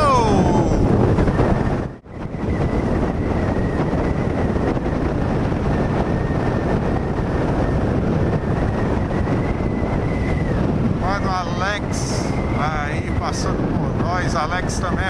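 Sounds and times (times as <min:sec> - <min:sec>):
motorcycle engine and road noise: 0:00.0 - 0:15.0
wind rush on microphone: 0:00.0 - 0:15.0.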